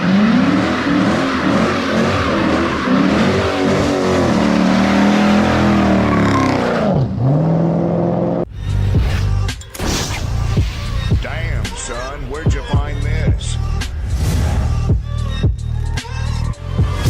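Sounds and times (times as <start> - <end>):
loud car exhaust revving: 0.0 - 8.5
low engine rumble: 11.0 - 17.0.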